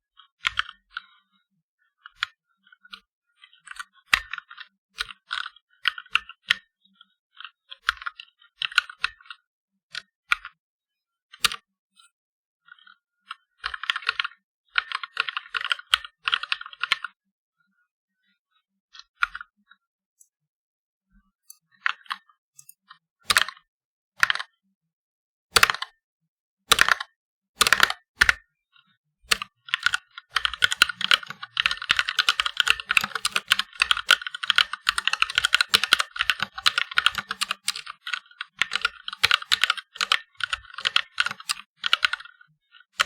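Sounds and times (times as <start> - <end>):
mechanical keyboard typing: 23.3 - 23.6, 24.2 - 24.5, 25.6 - 25.9, 26.7 - 28.4, 29.3 - 42.3.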